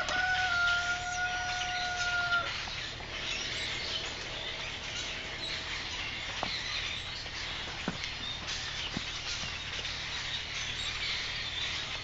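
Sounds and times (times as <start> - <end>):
rooster crowing: 0.0 - 2.6
flock of birds chattering: 0.0 - 12.0.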